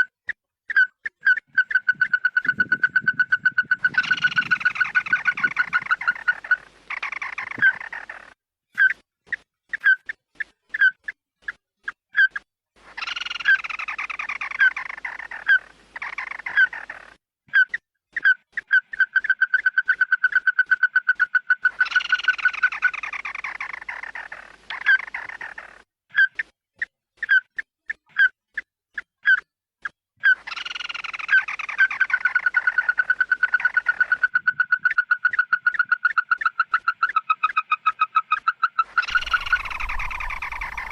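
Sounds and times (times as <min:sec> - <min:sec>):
harsh chattering bird calls: 0:00.7 - 0:11.6, 0:12.2 - 0:26.5, 0:30.2 - 0:40.9
whistled bird notes: 0:39.0 - 0:40.9.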